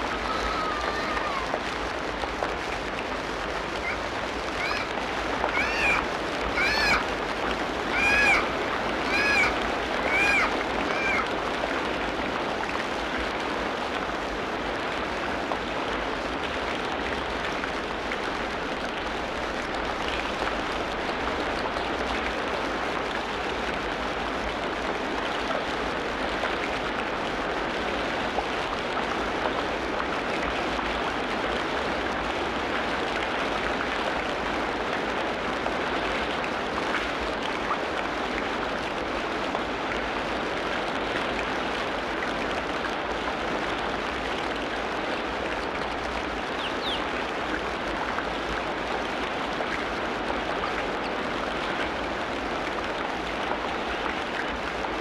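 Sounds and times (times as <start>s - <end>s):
heavy rain on foliage: 0.0s - 55.0s
pitched animal call: 3.8s - 7.1s, 7.8s - 11.3s.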